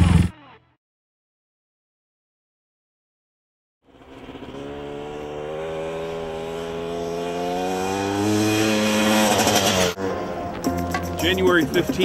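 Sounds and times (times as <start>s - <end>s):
motorcycle engine accelerating: 3.8s - 10.7s.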